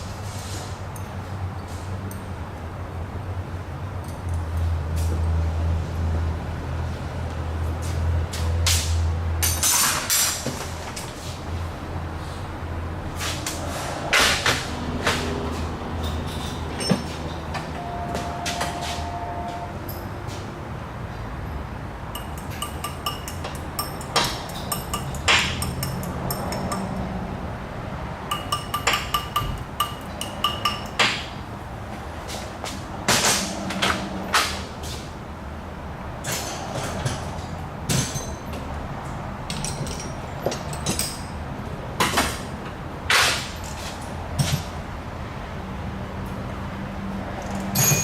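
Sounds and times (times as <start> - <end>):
hand tools knocking on steel: 22.2 - 27.0, 28.3 - 31.2.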